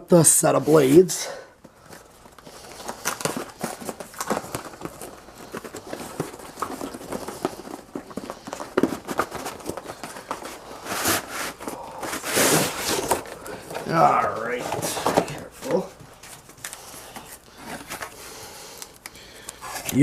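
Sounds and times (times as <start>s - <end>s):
wrapping rustling: 0.3s - 20.0s
cardboard box being opened: 2.6s - 16.0s.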